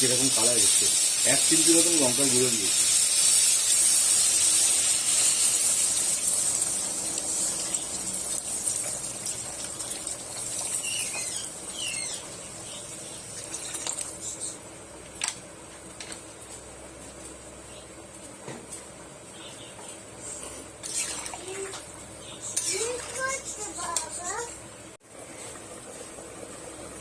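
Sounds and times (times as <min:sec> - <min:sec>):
curry sizzling in a pan: 0:00.0 - 0:14.1.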